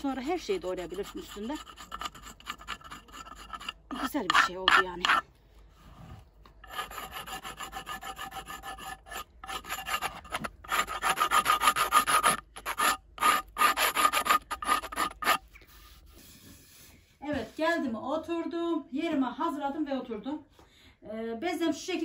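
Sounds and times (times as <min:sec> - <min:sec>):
glass scraping wooden board: 0:01.3 - 0:05.2, 0:06.6 - 0:15.5.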